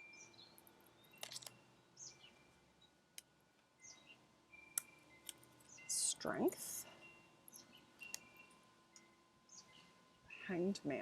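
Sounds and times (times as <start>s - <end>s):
bird chirping: 0.0s - 3.0s, 3.7s - 11.0s
cards clicking: 1.2s - 1.5s.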